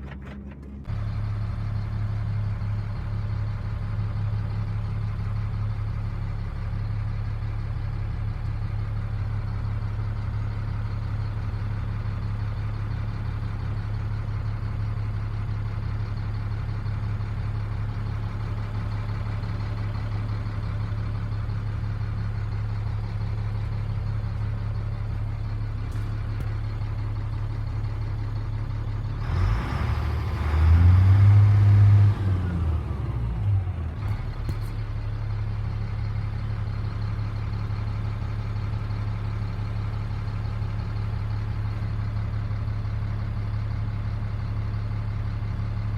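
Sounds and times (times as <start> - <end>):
diesel truck engine idling: 0.0 - 45.9
engine revving: 29.2 - 34.6.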